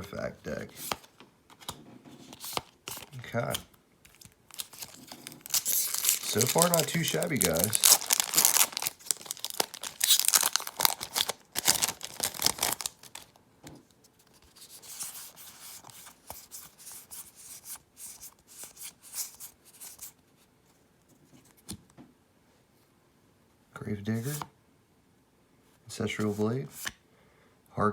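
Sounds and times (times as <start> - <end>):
cards rustling and clicking: 0.6 - 13.3, 14.3 - 20.2
foil wrapper tearing and crinkling: 4.1 - 13.3.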